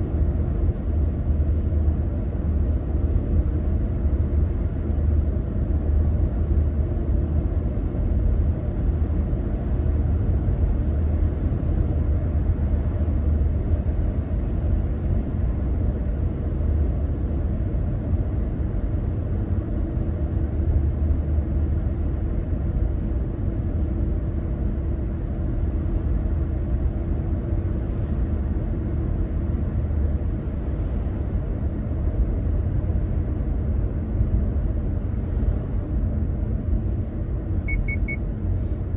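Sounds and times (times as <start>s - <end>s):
car engine and tyre rumble: 0.0s - 38.9s
faint steady hum: 37.6s - 38.9s.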